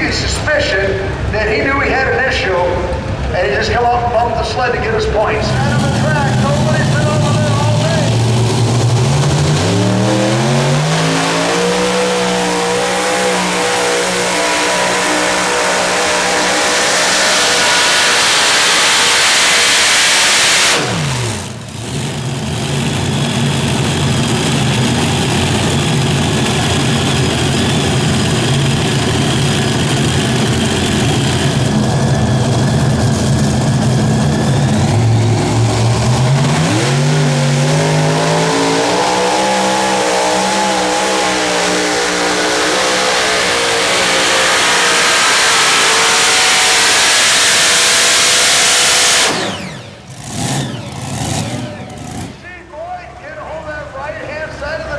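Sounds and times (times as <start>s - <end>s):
tractor engine running under load: 21.1s - 38.5s, 49.2s - 54.9s.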